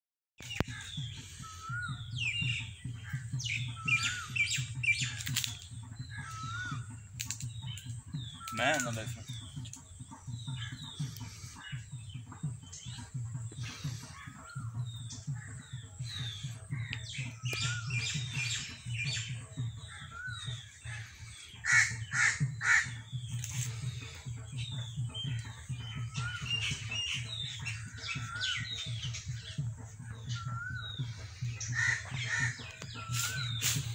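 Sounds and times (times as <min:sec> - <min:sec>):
birds whistling and chirping: 0:00.4 - 0:33.9
harsh bird calls: 0:00.4 - 0:33.9.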